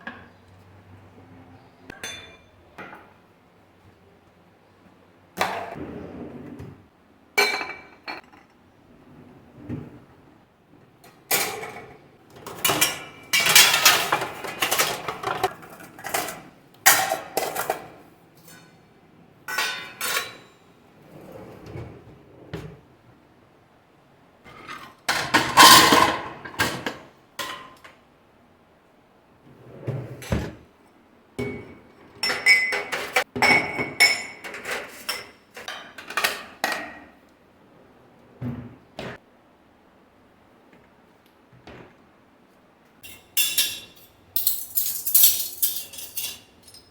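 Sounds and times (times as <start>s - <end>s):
dishes and utensils clinking: 1.9s - 3.1s, 7.4s - 8.6s, 11.3s - 18.8s, 19.5s - 20.6s, 31.4s - 36.9s, 43.0s - 46.9s.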